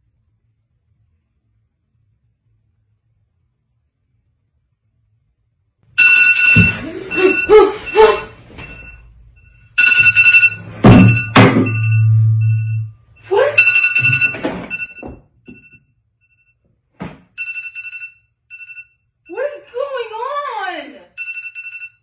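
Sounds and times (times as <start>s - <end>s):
loud electronic ringing tone: 6.0s - 9.0s, 9.8s - 15.7s
sudden thumps: 9.8s - 13.1s.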